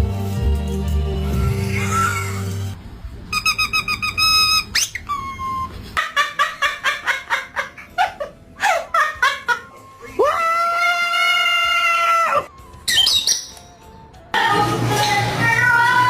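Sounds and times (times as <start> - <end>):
parrot whistling and chirping: 3.3 - 5.8, 12.8 - 13.8.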